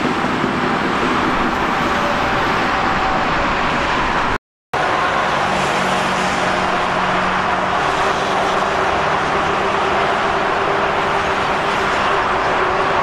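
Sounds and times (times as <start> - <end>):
passing train rolling: 0.0 - 13.0.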